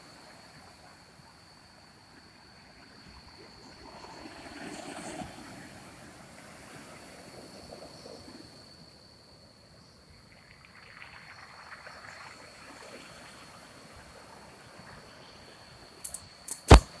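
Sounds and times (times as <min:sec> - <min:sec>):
clicks: 0:16.0 - 0:17.0.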